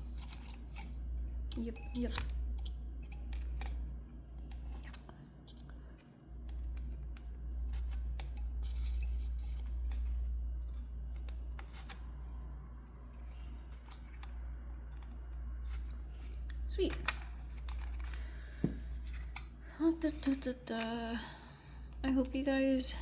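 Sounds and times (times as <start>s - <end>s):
scissors snipping paper: 0.0s - 5.8s
steady low hum: 0.0s - 23.0s.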